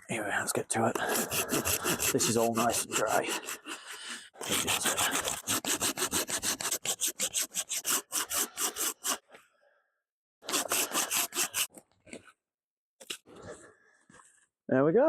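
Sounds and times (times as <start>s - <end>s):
hand saw cutting log: 0.8s - 9.3s, 10.4s - 11.7s.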